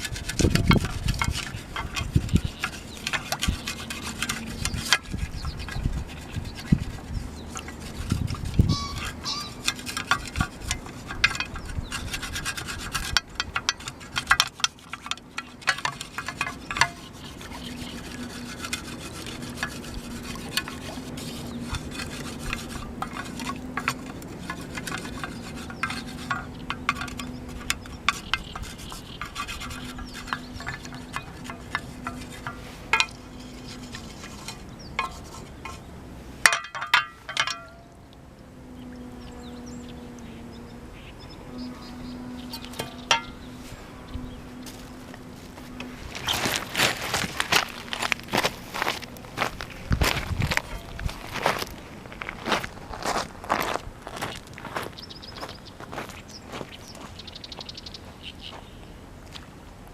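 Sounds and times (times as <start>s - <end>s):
cookware rubbing and scraping: 0.0s - 35.9s, 42.3s - 51.8s.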